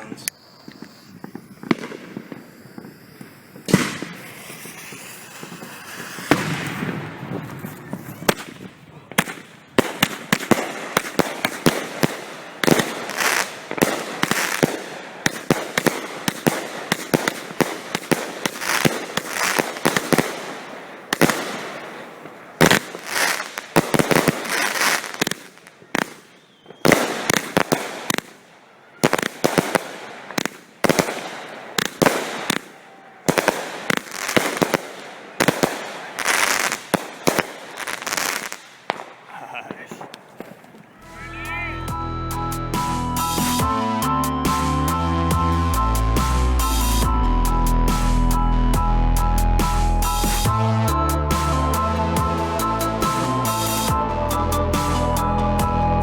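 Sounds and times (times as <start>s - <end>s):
fireworks barrage of sharp reports: 0.0s - 42.1s.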